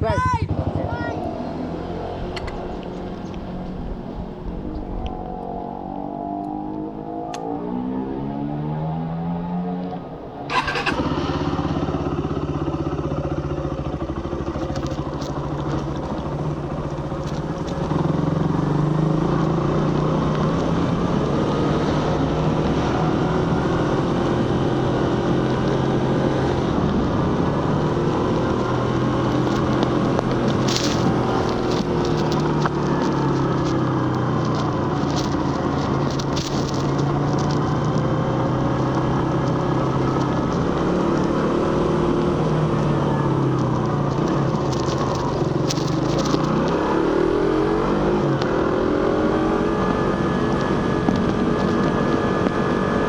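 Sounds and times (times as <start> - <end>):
exhaust crack: 0.0 - 53.0
motorcycle engine: 0.0 - 53.0
road and wind noise: 0.0 - 53.0.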